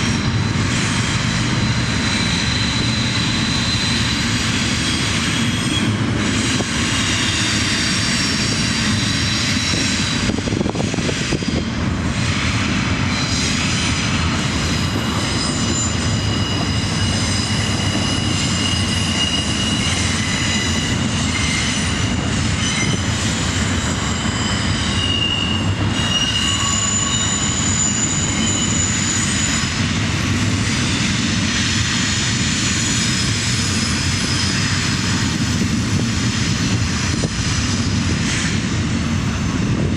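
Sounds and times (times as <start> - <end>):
diesel locomotive engine rumble: 0.0 - 39.9.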